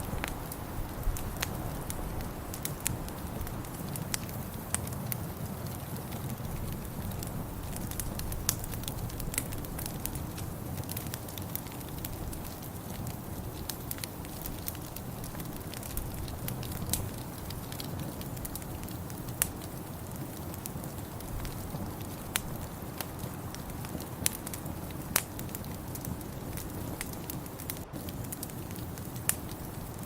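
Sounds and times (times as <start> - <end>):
fire crackling and popping: 0.0 - 30.0
fire rumbling: 0.0 - 30.0.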